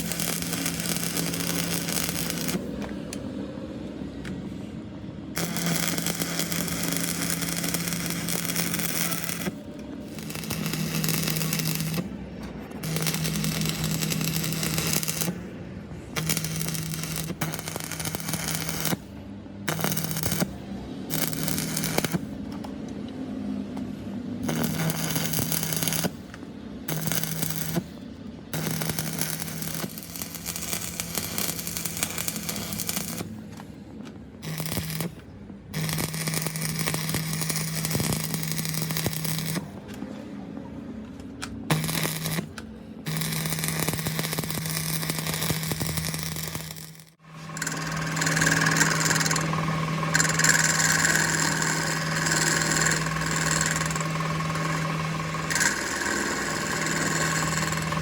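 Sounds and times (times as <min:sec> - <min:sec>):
electric welding crackling: 0:00.0 - 0:02.8, 0:05.3 - 0:12.2, 0:12.8 - 0:15.5, 0:16.1 - 0:22.4, 0:24.4 - 0:33.4, 0:34.4 - 0:39.8, 0:41.6 - 0:58.0
welder humming: 0:00.0 - 0:03.2, 0:03.9 - 0:22.5, 0:24.4 - 0:33.4, 0:34.4 - 0:39.8, 0:41.6 - 0:58.0.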